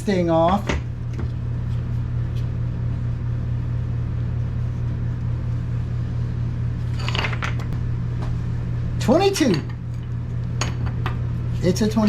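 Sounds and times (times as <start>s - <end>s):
machine humming: 2.6s - 12.0s.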